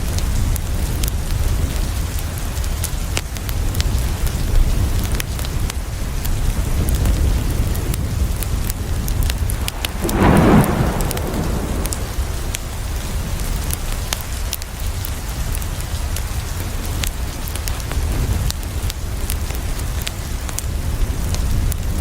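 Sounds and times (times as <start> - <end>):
rain against a window: 0.0 - 22.0
wood fire crackling: 2.2 - 22.0
brief rumble: 9.5 - 13.0.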